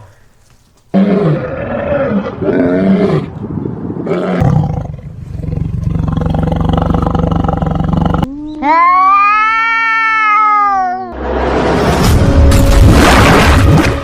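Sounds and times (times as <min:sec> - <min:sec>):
big cat roaring: 0:00.9 - 0:03.4, 0:04.0 - 0:08.3.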